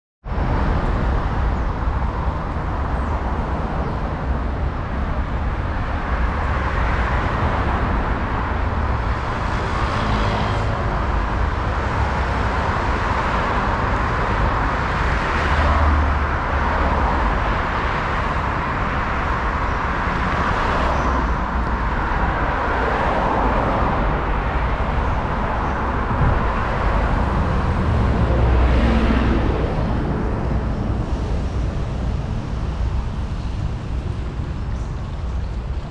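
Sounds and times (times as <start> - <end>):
cars passing by: 0.2 - 35.9.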